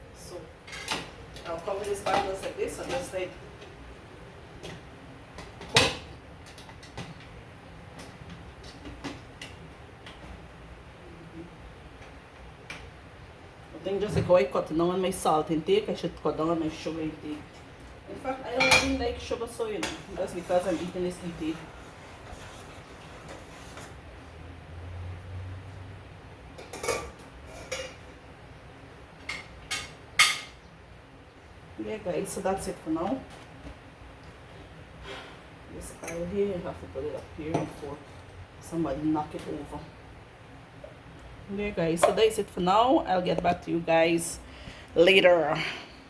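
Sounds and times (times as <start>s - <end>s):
low steady hum: 0.0s - 46.0s
pots and metal utensils clinking: 18.5s - 19.2s, 26.6s - 28.1s.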